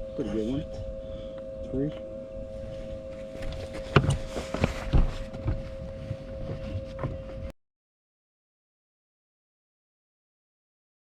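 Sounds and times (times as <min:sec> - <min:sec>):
two-note electric hum: 0:00.0 - 0:07.5
wind rumble: 0:00.0 - 0:07.5.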